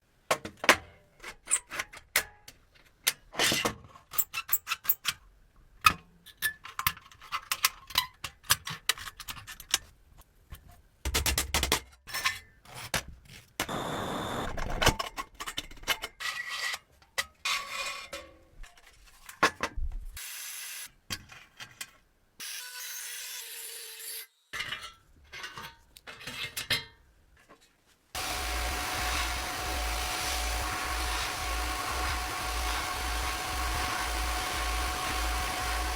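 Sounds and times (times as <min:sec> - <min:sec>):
steady machine noise: 0:13.7 - 0:14.5, 0:28.2 - 0:35.9.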